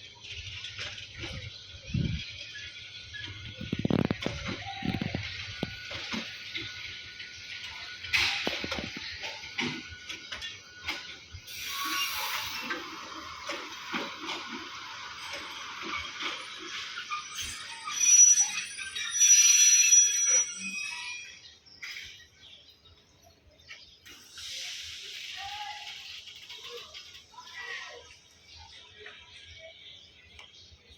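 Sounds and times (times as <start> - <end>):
train running on rails: 0.0 - 22.4
high metallic squeal: 3.0 - 14.4, 15.0 - 22.2.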